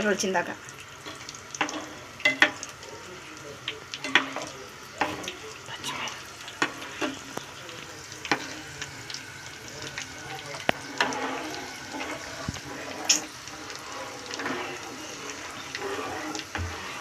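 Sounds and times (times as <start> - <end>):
nuts sizzling in hot oil: 0.0 - 17.0
spoon knocking and scraping pan: 1.0 - 2.7, 4.0 - 5.3, 6.6 - 7.4, 8.2 - 8.6, 10.6 - 17.0.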